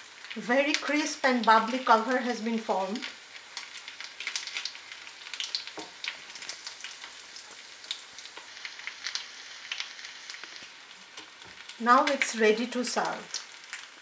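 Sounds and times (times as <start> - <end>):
cutlet frying in hot oil: 0.0 - 14.0
sharp crackles and pops: 0.0 - 14.0.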